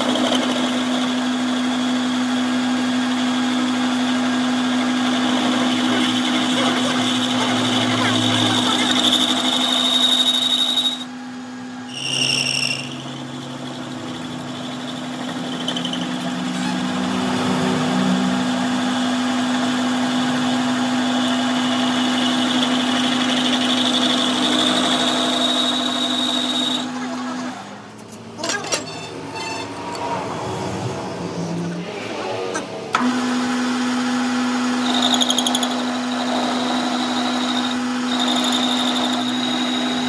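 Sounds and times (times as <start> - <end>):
workshop machine humming: 0.0 - 40.0
high squeal: 5.5 - 11.2, 11.8 - 13.4, 14.0 - 18.7, 23.0 - 27.5, 28.4 - 32.8.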